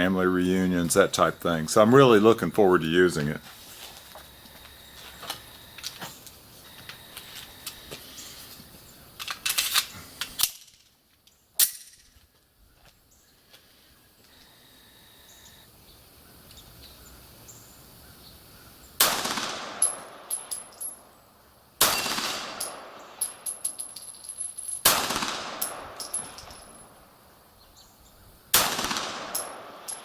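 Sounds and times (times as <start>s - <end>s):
pistol shots: 19.0s - 20.7s, 21.8s - 23.6s, 24.8s - 26.6s, 28.5s - 30.0s
sharp metallic clinks: 19.8s - 21.2s, 21.8s - 25.0s, 25.6s - 27.0s, 29.2s - 30.0s.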